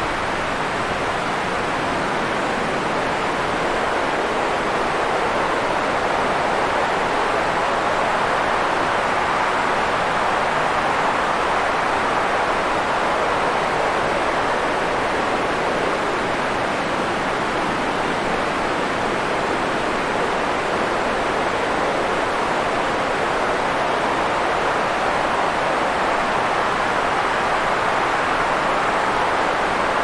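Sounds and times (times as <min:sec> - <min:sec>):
white noise hiss: 0:00.0 - 0:30.0.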